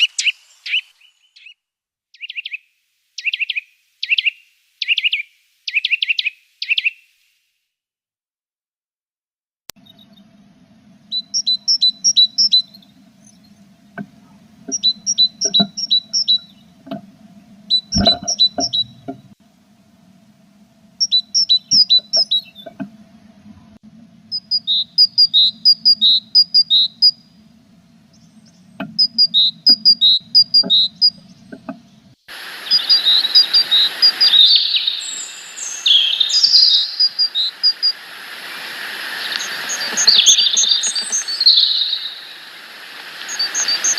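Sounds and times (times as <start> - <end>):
steady hiss: 0.0 - 1.2, 9.8 - 43.9
songbird singing: 0.0 - 1.6, 2.2 - 7.0, 9.8 - 43.9
low hum: 9.7 - 43.9
other birds calling: 9.8 - 43.9.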